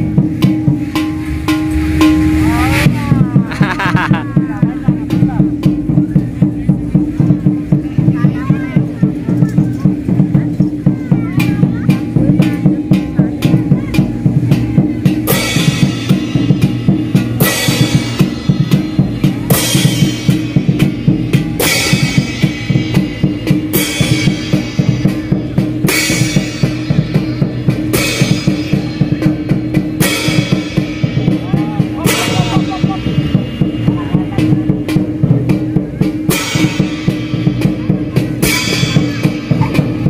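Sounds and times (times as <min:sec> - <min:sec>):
cymbal crash: 0:00.0 - 0:04.4, 0:12.0 - 0:40.0
fast dense drumming: 0:00.0 - 0:40.0.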